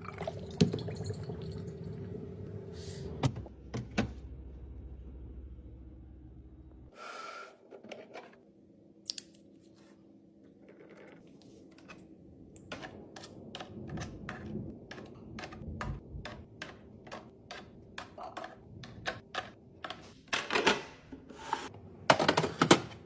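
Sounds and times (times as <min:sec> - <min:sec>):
low hum: 0:00.8 - 0:06.9.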